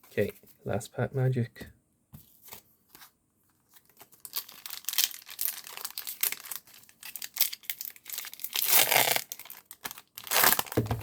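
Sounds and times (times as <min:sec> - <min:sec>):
foil wrapper tearing and crinkling: 0:03.8 - 0:11.0.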